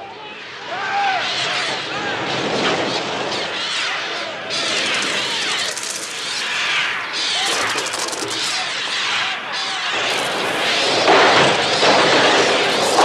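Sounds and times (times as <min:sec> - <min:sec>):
rapid flutter of wing-beats: 0:04.3 - 0:13.0.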